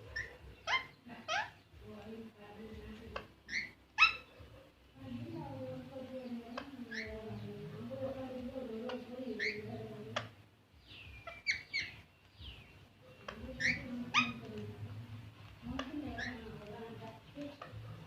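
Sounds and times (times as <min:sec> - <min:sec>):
parrot squawking: 0:00.0 - 0:01.7, 0:03.2 - 0:04.5, 0:06.8 - 0:07.7, 0:08.7 - 0:10.4, 0:11.1 - 0:12.1, 0:13.1 - 0:14.7, 0:15.8 - 0:16.7.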